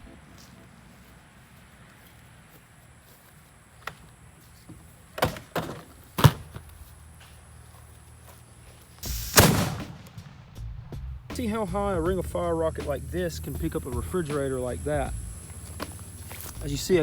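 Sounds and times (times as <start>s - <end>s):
sharp knocks and thuds: 4.7s - 6.7s
loud crash: 9.1s - 10.9s.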